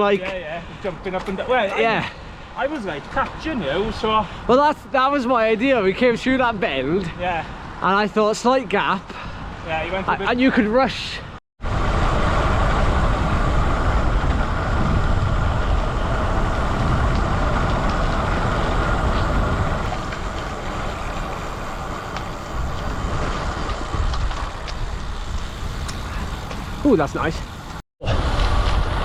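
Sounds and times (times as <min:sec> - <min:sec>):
bike tyre noise on road: 0:00.0 - 0:10.2, 0:11.6 - 0:29.0
wind rushing over microphone: 0:11.2 - 0:29.0.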